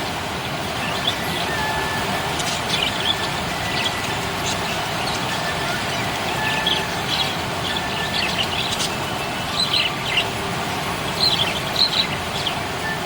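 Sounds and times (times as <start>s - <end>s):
steady background hiss: 0.0s - 13.0s
budgerigars chirping: 2.5s - 10.3s, 11.1s - 12.6s.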